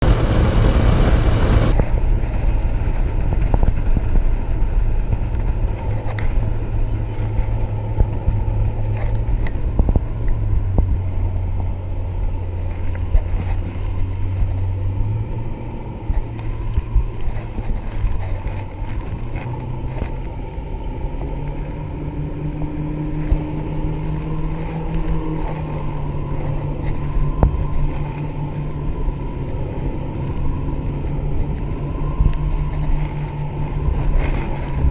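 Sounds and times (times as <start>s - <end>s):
outboard motor running: 0.0s - 34.9s.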